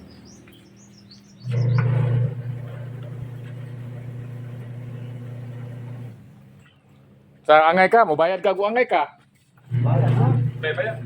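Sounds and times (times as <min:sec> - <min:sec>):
washing machine motor humming: 0:01.4 - 0:06.8, 0:09.6 - 0:11.0.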